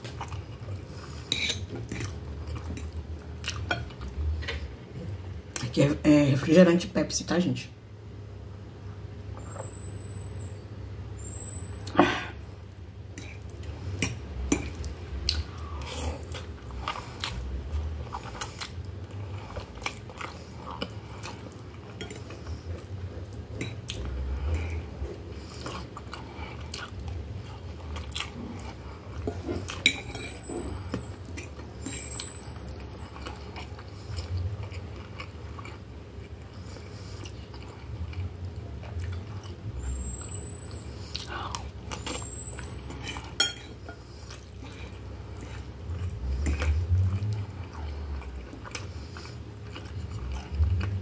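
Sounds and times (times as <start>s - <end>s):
chewing and swallowing: 0.0s - 5.7s, 13.1s - 32.3s, 33.0s - 40.2s, 41.1s - 51.0s
fork scraping on glass plate: 29.3s - 31.1s, 42.5s - 44.0s.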